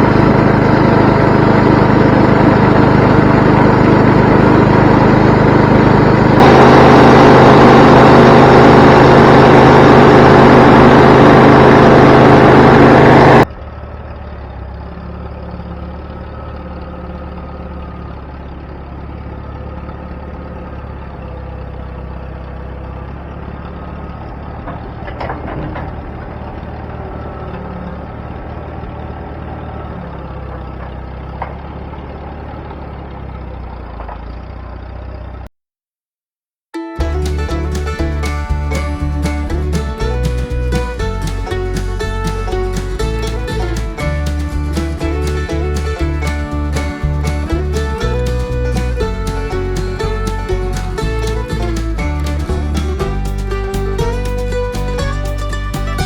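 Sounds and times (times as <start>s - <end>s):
sawmill engine running hard: 0.0s - 13.5s, 37.0s - 56.0s
engine idling: 0.0s - 35.5s, 37.0s - 56.0s.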